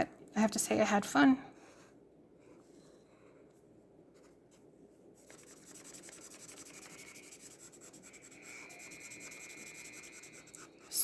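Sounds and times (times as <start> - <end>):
marker scratching on paper: 5.2 - 11.0.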